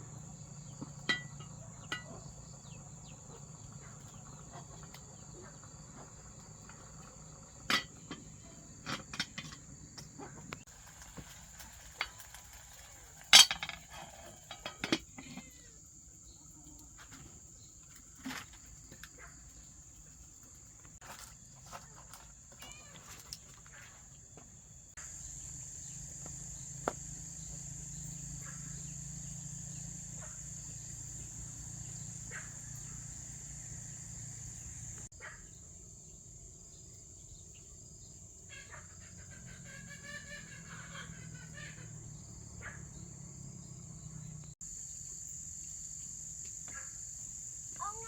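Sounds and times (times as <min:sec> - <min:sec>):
insects chirring: 0:00.0 - 0:48.0.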